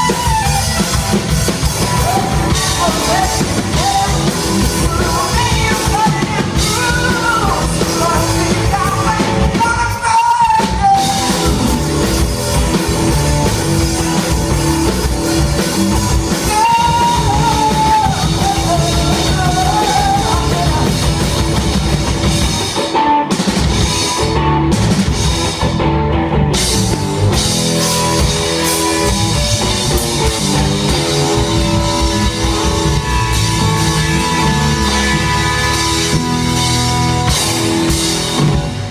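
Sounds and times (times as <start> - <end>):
rock band playing live: 0.0 - 38.9
person singing: 1.8 - 12.1, 16.3 - 21.6.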